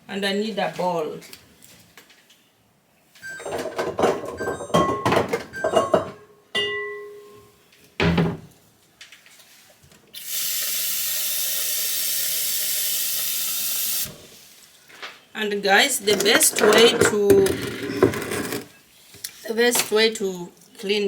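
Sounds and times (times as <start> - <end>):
bowl clattering and ringing: 3.2 - 7.6
thump: 8.0 - 8.5.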